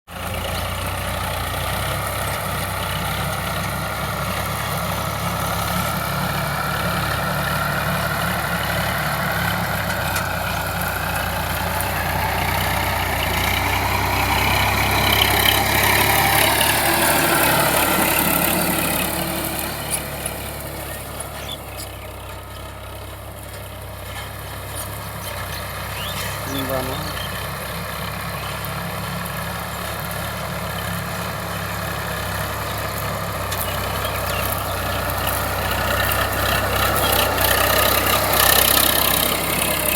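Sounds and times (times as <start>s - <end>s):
tractor diesel engine running: 0.1s - 39.9s.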